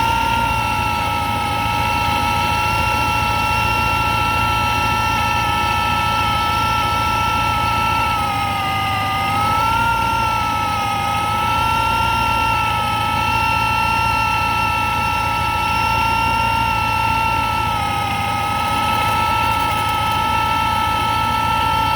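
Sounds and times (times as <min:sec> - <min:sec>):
supercharger whine: 0:00.0 - 0:21.9
car engine idling: 0:17.4 - 0:21.9.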